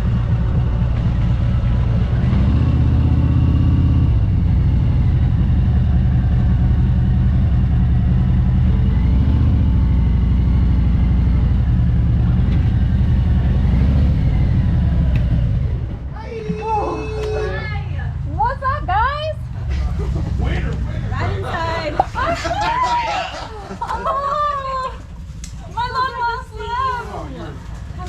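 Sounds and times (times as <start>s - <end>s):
motorcycle engine revving: 0.0s - 16.2s.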